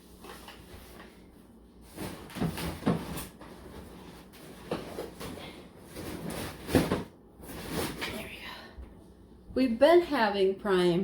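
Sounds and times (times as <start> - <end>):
handling knocks and scrapes: 0.0 - 8.4.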